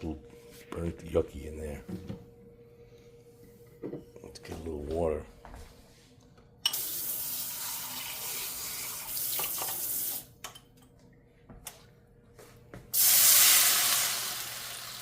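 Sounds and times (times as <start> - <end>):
water sizzling in hot pan: 6.8 - 10.2, 13.0 - 15.0.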